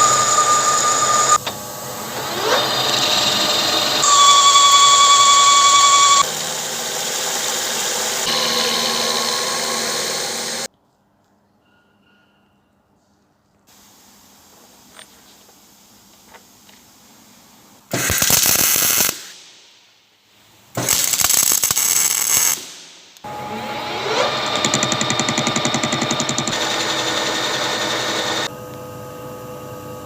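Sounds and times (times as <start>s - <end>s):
motor whining and running: 0.0s - 10.7s, 23.2s - 29.6s
power tool rapid rattling: 20.8s - 22.9s, 24.3s - 28.5s.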